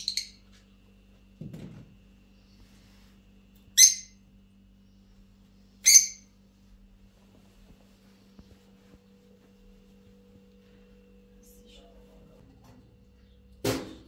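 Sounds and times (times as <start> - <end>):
high-pitched bird calls: 0.0 - 0.4, 3.8 - 4.2, 5.8 - 6.3.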